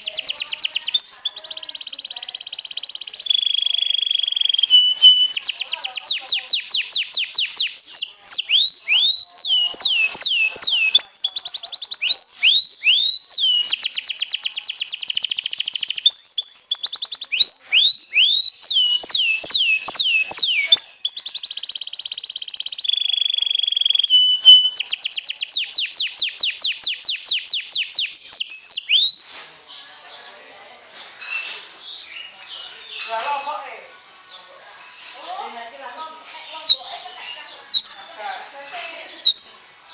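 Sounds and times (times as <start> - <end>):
canary singing: 0.0 - 30.4, 31.2 - 39.9.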